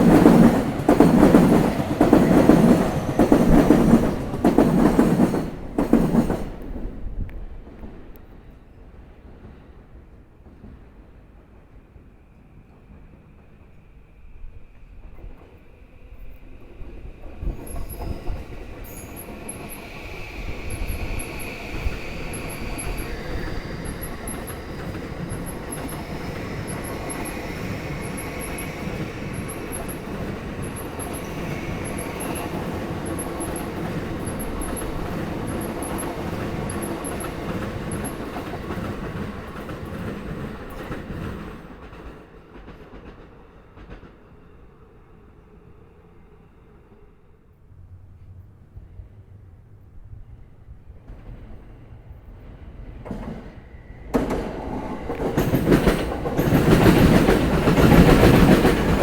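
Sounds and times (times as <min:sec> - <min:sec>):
train wheels clattering over rail joints: 0:00.0 - 0:06.8, 0:54.1 - 0:59.0.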